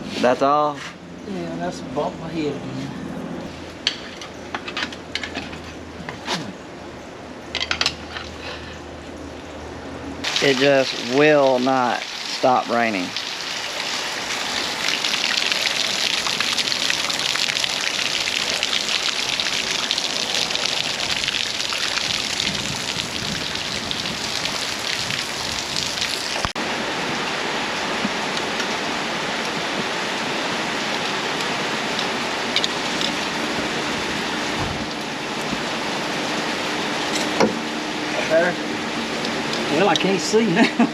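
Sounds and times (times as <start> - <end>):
steady rain falling: 10.2 - 40.9.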